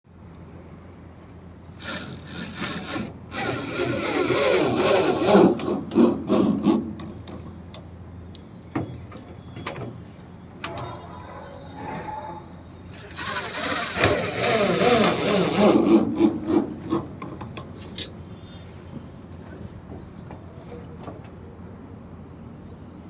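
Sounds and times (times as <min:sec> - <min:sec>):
rough scraping or sawing: 0:01.8 - 0:06.8, 0:13.0 - 0:17.1.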